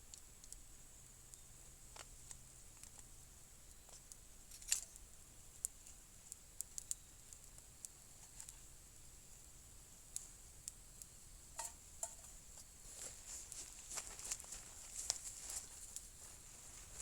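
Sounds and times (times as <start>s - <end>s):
faint high hiss: 0.0s - 17.0s
faint clicks and ticks: 3.7s - 8.7s.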